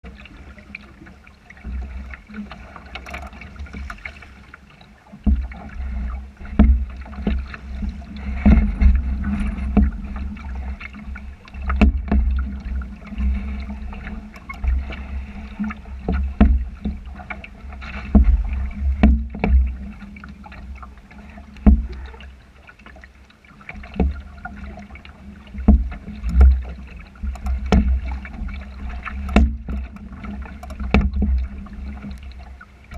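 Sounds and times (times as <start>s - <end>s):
water slapping against hull: 0.0s - 32.9s
sharp knocks: 29.2s - 29.9s.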